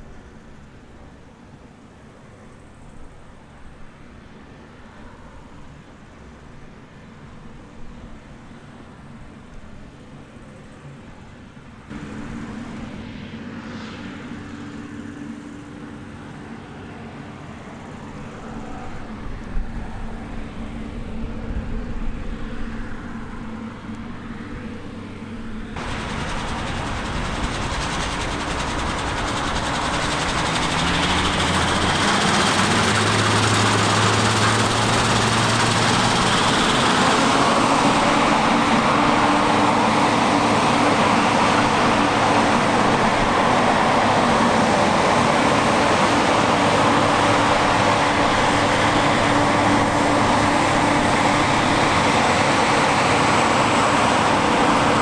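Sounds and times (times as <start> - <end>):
harvest machinery engine hum: 25.8 - 55.0
rushing machine noise: 25.8 - 55.0.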